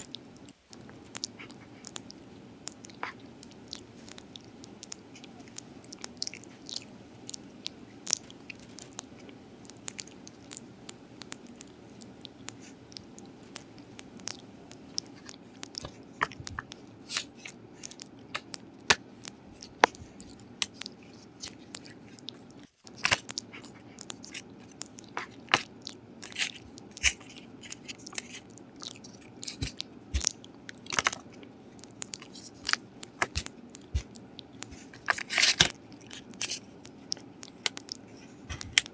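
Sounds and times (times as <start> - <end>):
dog crunching and chewing food: 0.0 - 38.9.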